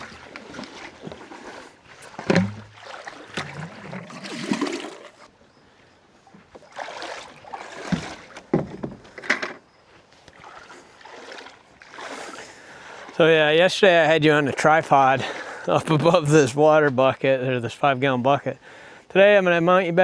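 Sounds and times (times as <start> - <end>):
hollow thumps on hull: 0.0 - 5.1, 6.3 - 9.6
gear knocking in canoe: 0.0 - 5.6, 6.2 - 13.4
water noise: 0.0 - 20.0.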